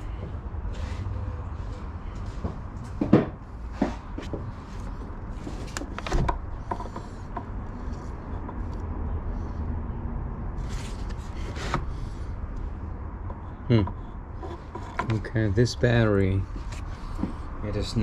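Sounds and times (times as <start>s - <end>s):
sharp knocks and clicks: 5.5s - 7.8s, 13.2s - 15.3s.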